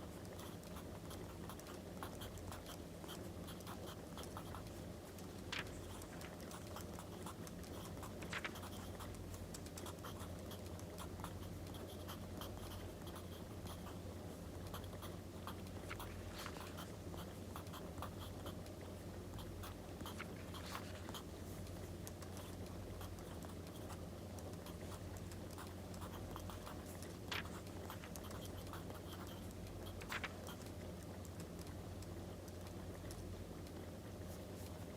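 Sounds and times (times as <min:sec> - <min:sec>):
steady low hum: 0:00.0 - 0:34.9
pen scratching on paper: 0:05.6 - 0:09.2, 0:19.4 - 0:21.4, 0:24.6 - 0:30.6.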